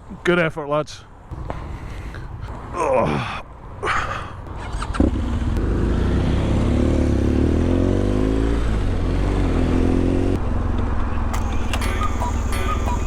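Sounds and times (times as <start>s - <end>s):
motorcycle engine accelerating: 4.5s - 13.0s.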